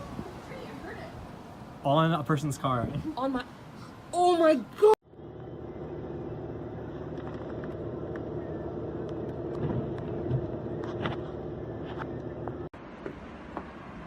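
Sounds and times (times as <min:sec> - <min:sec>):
vehicle engine running: 0:05.0 - 0:12.8.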